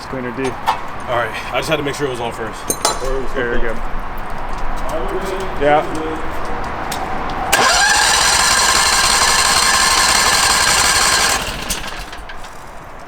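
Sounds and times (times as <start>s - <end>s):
pressure washer spraying: 7.5s - 12.2s.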